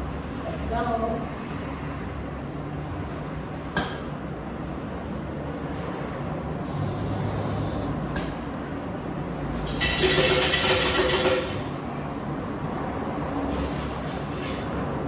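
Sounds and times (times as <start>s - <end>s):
washing machine humming: 9.4s - 15.0s.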